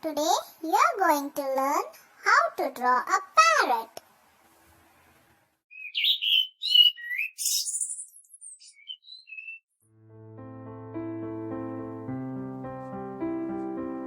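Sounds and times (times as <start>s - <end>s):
parrot chirps and whistles: 5.7s - 9.6s
soft piano music: 9.8s - 14.0s.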